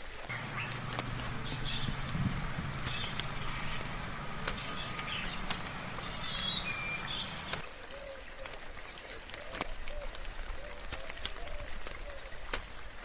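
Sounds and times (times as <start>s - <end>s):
sharp drips: 0.0s - 13.0s
soft rain falling: 0.0s - 13.0s
birds chirping: 0.3s - 7.6s
low hum: 0.3s - 7.6s.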